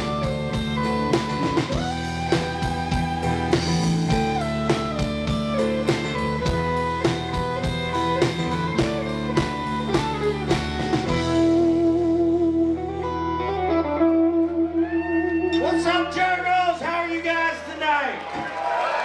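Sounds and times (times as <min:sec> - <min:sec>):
drum kit: 0:00.0 - 0:11.9
electric guitar: 0:00.0 - 0:15.8.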